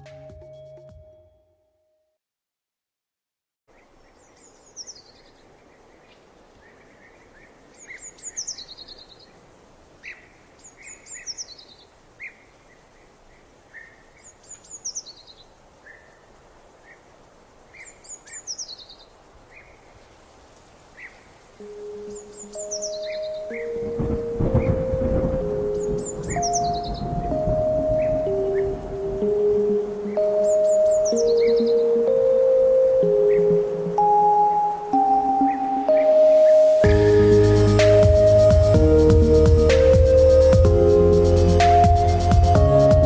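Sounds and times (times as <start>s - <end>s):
steady background hiss: 3.7s - 43.0s
soft low bird chirps: 21.0s - 38.4s
songbird descending phrase: 21.6s - 43.0s.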